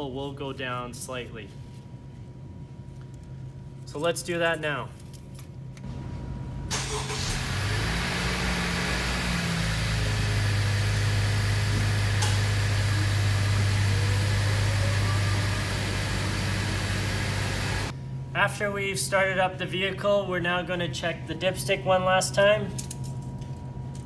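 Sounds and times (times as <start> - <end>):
car engine starting and idling: 6.7 - 17.9.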